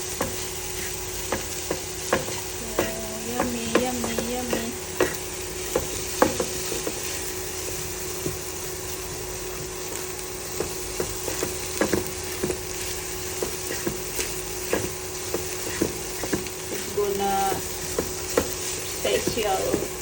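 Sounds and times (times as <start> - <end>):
oil sizzling: 0.0 - 20.0
spatula scraping a pan: 11.2 - 20.0.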